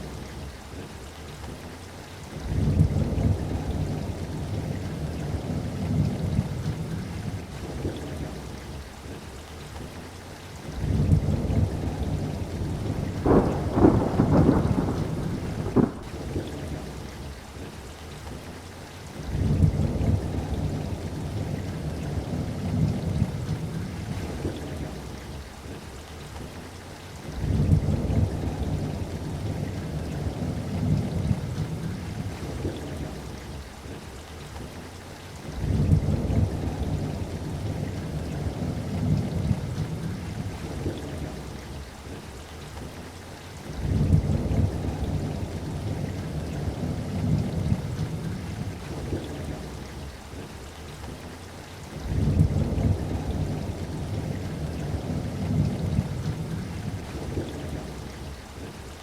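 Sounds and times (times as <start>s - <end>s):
steady rain: 0.0s - 59.0s
rolling thunder: 10.8s - 16.9s, 35.6s - 41.4s, 43.7s - 50.1s, 52.0s - 58.2s.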